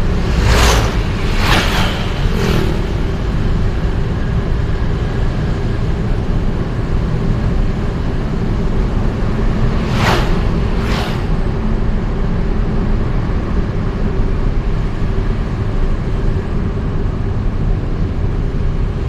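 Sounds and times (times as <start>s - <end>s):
passing vehicles whooshing: 0.0s - 5.7s, 7.8s - 13.4s
vehicle road noise rumble: 0.0s - 19.0s.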